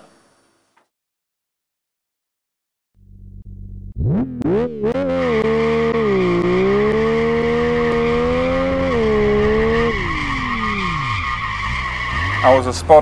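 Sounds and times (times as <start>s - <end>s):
car engine revving: 3.0s - 13.0s.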